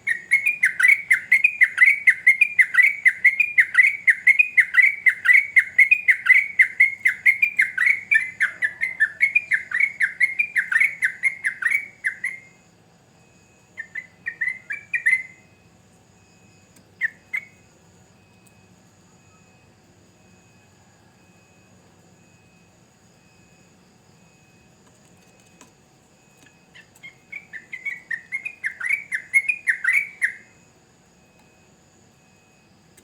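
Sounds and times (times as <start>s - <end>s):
bulbul chattering song: 0.0s - 12.6s, 13.8s - 15.5s, 26.7s - 30.6s.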